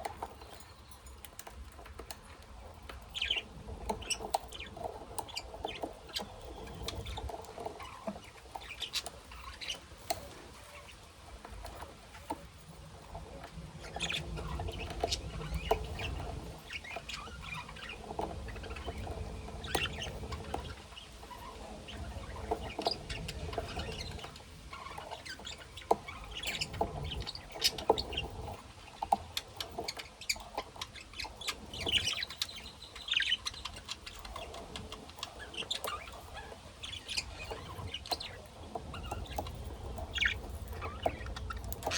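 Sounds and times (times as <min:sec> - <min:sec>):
birds rustling in a cage: 0:00.0 - 0:41.9
caged birds chirping: 0:00.0 - 0:41.9.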